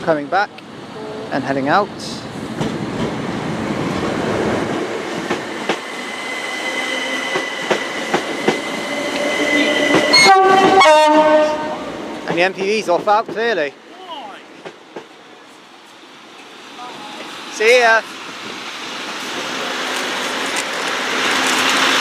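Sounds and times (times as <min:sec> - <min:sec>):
two-tone train horn: 0:01.0 - 0:01.3, 0:09.1 - 0:12.2
electric train whine: 0:02.3 - 0:13.0.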